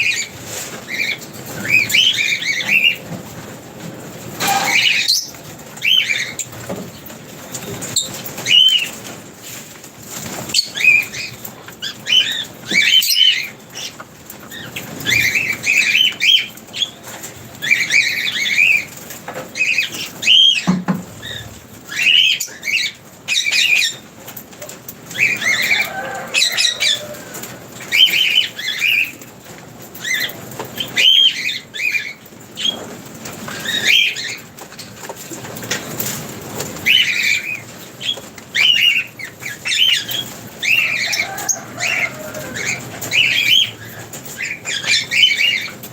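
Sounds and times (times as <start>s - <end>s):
small parrots chirping: 36.8s - 45.8s.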